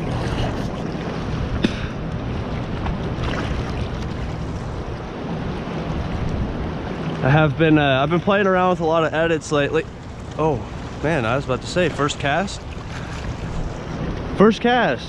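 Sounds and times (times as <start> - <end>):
wind rumbling on microphone: 0.0 - 7.8, 12.6 - 14.4.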